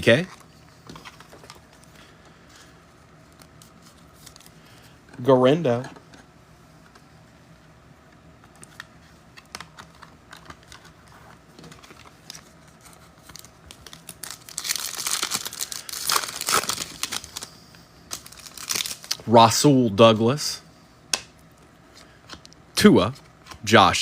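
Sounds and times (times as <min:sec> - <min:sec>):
foil wrapper crinkling and tearing: 0:11.8 - 0:17.5, 0:18.1 - 0:19.3.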